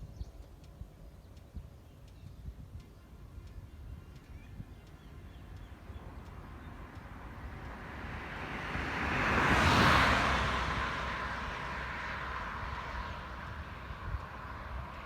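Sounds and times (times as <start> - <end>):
vehicle passing by: 5.8 - 15.0.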